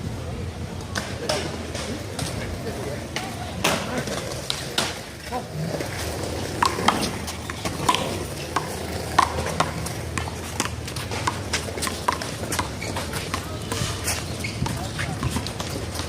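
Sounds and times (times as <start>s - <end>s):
handball hitting wall and pavement: 6.0s - 16.0s.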